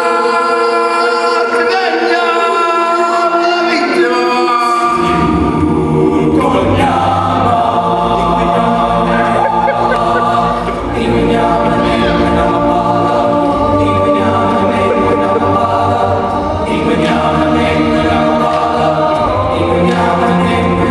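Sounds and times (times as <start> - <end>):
vocal group singing in harmony: 0.0 - 20.9
low bass voice: 8.4 - 12.6, 14.5 - 16.5.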